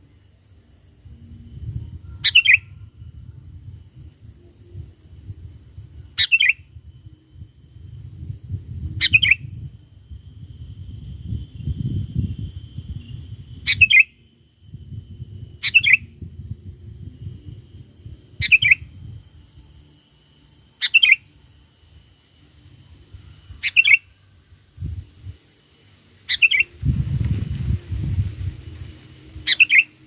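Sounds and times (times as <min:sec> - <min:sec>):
bird chirping: 0:02.1 - 0:02.8, 0:06.2 - 0:06.7, 0:09.0 - 0:09.6, 0:12.9 - 0:14.3, 0:15.4 - 0:16.3, 0:17.8 - 0:19.1, 0:20.8 - 0:21.4, 0:23.4 - 0:24.3, 0:26.2 - 0:27.0, 0:29.4 - 0:30.0
low rumble: 0:26.6 - 0:30.0.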